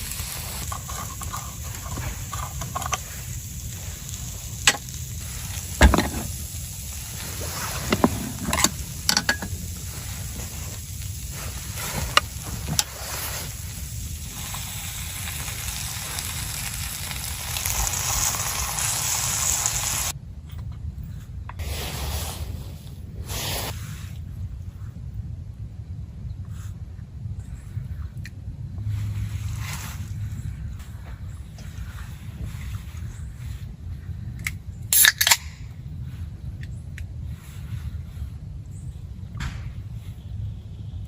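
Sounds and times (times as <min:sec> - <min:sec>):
steady hissing: 0:00.0 - 0:20.2, 0:21.5 - 0:24.2.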